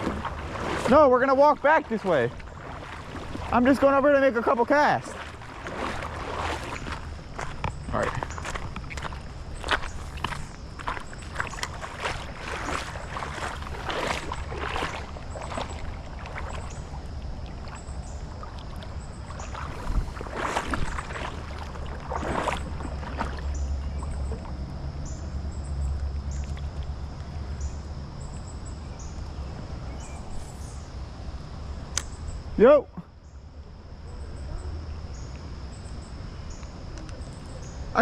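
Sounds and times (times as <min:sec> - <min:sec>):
legs wading through water: 0:00.0 - 0:31.1
wind rumble on microphone: 0:05.0 - 0:32.5.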